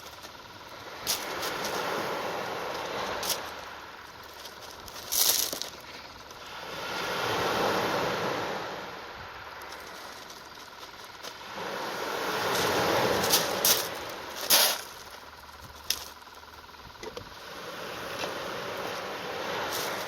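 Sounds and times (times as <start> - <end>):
sea waves washing in: 0.7 - 4.0, 6.4 - 14.9, 17.4 - 20.0
sharp rustle: 12.5 - 16.2.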